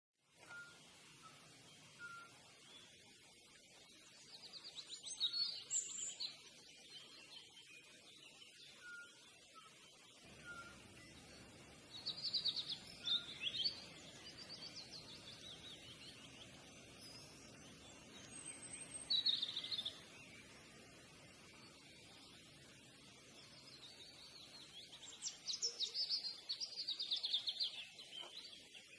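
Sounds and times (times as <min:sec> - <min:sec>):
faint background noise: 0:00.2 - 0:28.9
songbird trilling: 0:10.3 - 0:20.5.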